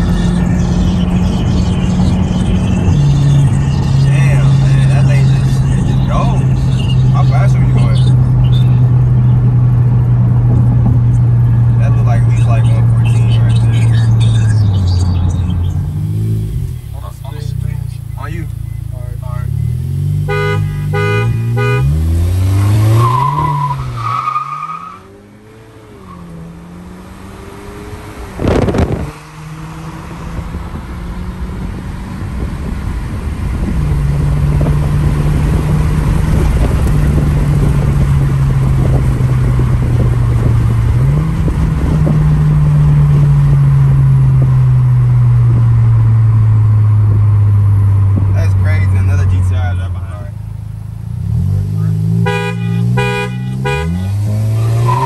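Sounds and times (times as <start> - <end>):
car engines accelerating: 0.0 - 55.0
car horn honk: 17.5 - 23.8, 52.1 - 55.0.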